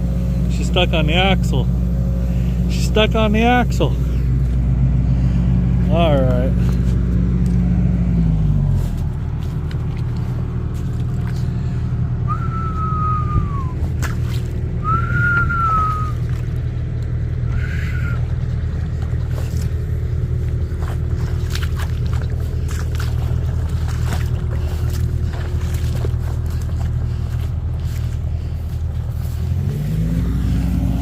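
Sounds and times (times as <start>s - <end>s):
engine droning: 0.0s - 31.0s
whistled notes: 12.2s - 13.8s, 14.8s - 16.2s.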